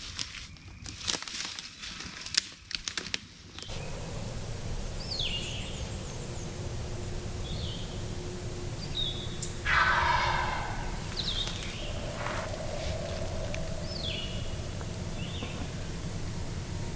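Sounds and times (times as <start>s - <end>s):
outdoor hiss: 3.7s - 16.9s
songbirds calling: 3.7s - 16.9s.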